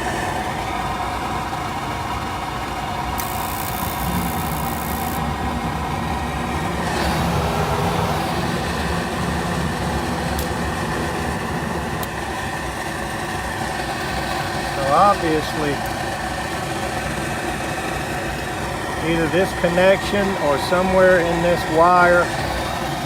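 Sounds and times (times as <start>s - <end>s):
motor hum and whine: 0.0s - 23.0s
high hiss: 3.0s - 23.0s.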